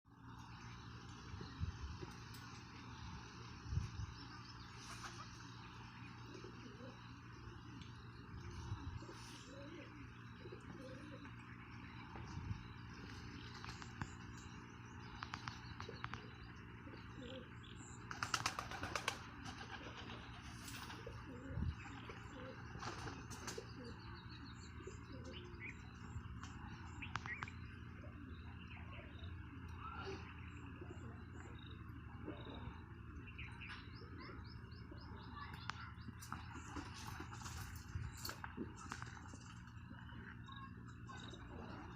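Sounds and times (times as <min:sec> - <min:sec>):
birds chirping: 0:00.1 - 0:41.9
low background hum: 0:00.1 - 0:41.9
doves cooing: 0:04.2 - 0:35.2.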